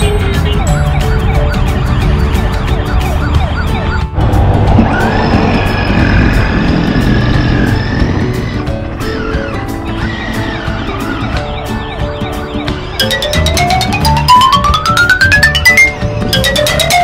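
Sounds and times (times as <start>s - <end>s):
toy police siren sweeping: 0.4s - 4.2s
music with steady beat: 11.4s - 17.0s.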